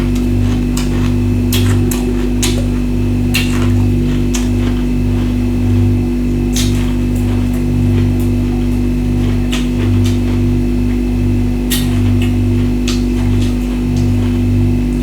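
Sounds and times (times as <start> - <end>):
ice crunching in the mouth: 0.0 - 7.4
steady electrical hum: 0.0 - 15.0.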